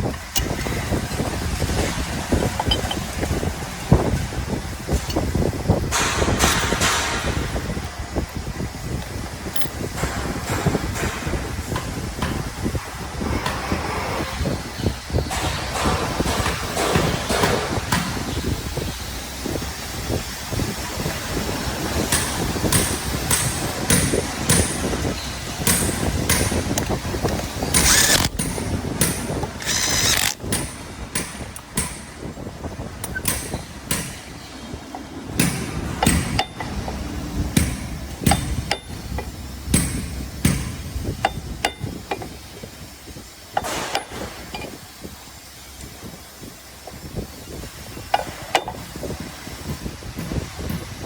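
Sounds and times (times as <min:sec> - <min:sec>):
hand tools clanking on steel: 0:02.4 - 0:03.7, 0:09.4 - 0:11.2, 0:22.1 - 0:32.1, 0:34.9 - 0:37.0, 0:37.6 - 0:42.5, 0:43.5 - 0:44.8.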